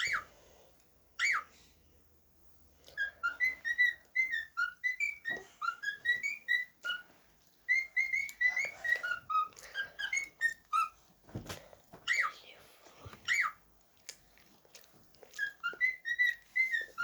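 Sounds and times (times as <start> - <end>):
cockatiel whistling chirps: 0.0 - 0.3, 1.2 - 1.6, 2.9 - 11.0, 12.1 - 12.3, 13.3 - 13.6, 15.4 - 17.0.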